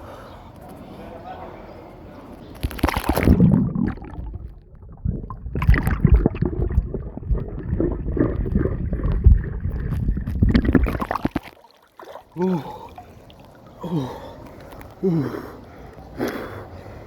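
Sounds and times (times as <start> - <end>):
pool water splashing: 2.5 - 16.2
heavy low rumble: 3.3 - 11.0.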